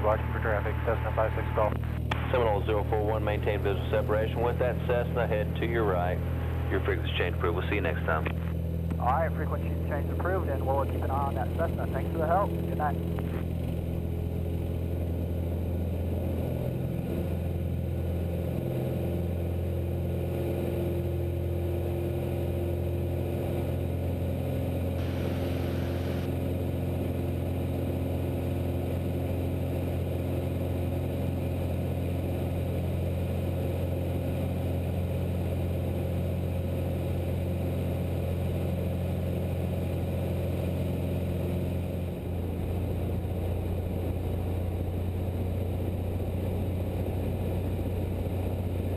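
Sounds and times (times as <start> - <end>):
aircraft engine droning: 0.0 - 48.9.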